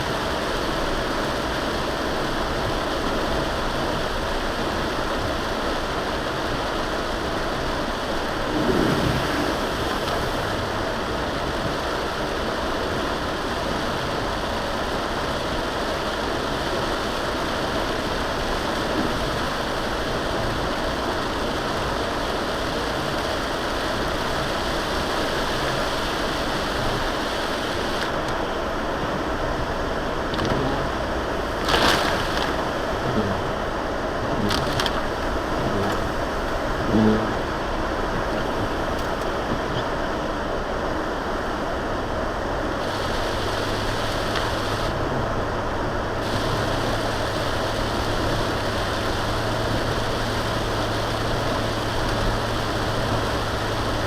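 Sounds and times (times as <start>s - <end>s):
tyres hissing through water: 0.0s - 28.3s, 42.4s - 54.0s
car engine: 7.2s - 15.0s, 17.8s - 40.3s
water swoosh: 7.6s - 11.8s.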